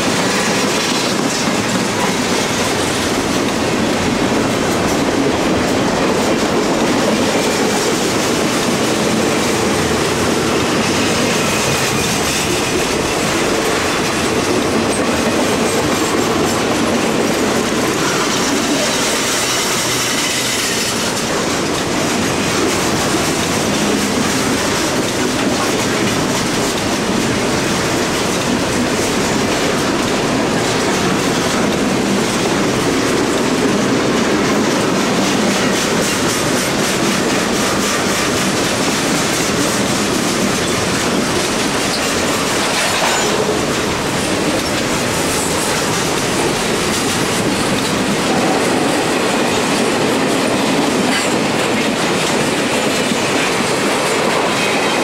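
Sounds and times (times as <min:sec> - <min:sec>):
freight train wheels clicking: 0:00.0 - 0:55.0.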